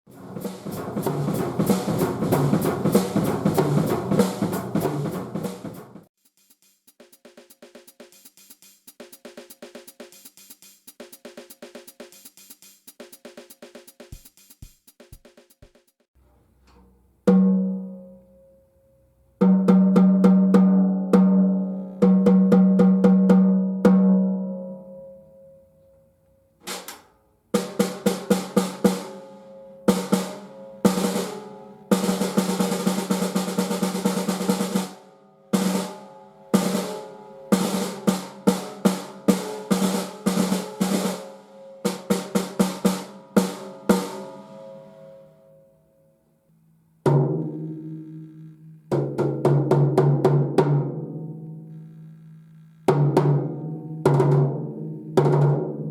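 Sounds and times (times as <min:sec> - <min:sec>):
snare drum strokes and rolls: 0:00.0 - 0:16.1, 0:27.6 - 0:29.3, 0:29.9 - 0:44.4.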